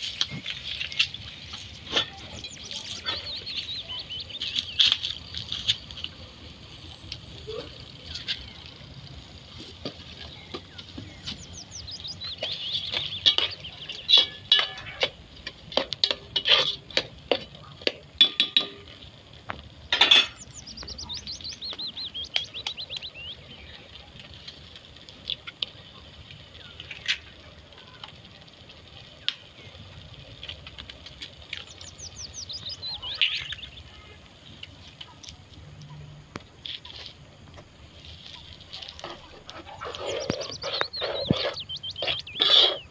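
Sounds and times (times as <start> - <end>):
utensils clinking against dishes: 0.0 - 5.2, 12.2 - 19.0, 19.9 - 22.1, 39.1 - 42.9
bird singing falling trills: 0.2 - 5.4, 10.2 - 14.4, 20.2 - 23.8, 31.6 - 34.0, 39.7 - 42.9.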